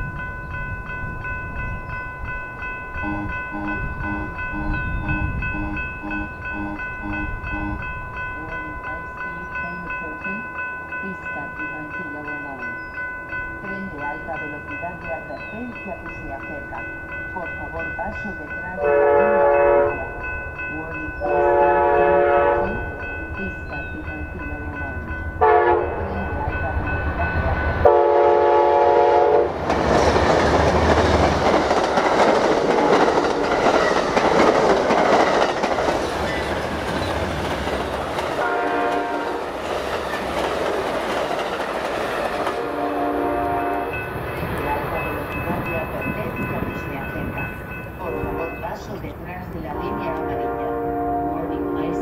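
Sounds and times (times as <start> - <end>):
train cars rattling over rails: 0.0 - 52.0
train horn blasts: 3.0 - 9.1, 18.8 - 23.2, 24.3 - 26.6, 27.8 - 29.6, 38.4 - 39.6, 42.5 - 44.2, 48.0 - 48.7, 49.7 - 52.0.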